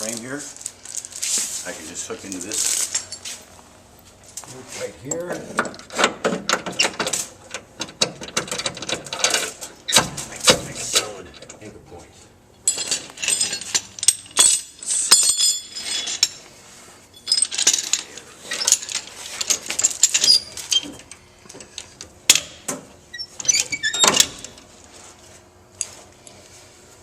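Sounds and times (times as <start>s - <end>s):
chain clanking: 12.6s - 16.4s, 17.1s - 21.8s
steel chain clinking and rattling: 12.6s - 16.5s, 17.1s - 21.8s.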